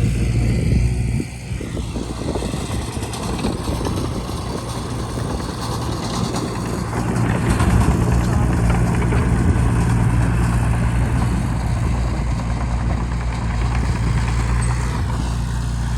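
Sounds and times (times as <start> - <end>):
bulldozer diesel engine running: 0.0 - 15.9
dense clatter: 2.8 - 15.9.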